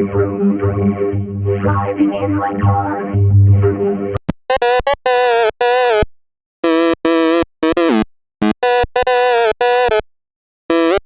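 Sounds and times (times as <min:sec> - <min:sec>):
buzzy synthesizer tone bursts: 0:00.0 - 0:06.0.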